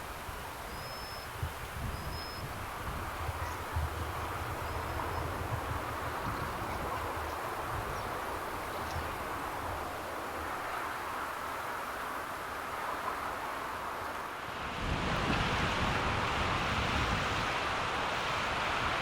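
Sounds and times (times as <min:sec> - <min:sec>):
outdoor background hiss: 0:00.0 - 0:19.0
wind rumble on microphone: 0:00.0 - 0:19.0
faint high bird chirps: 0:00.7 - 0:01.3, 0:01.9 - 0:02.5.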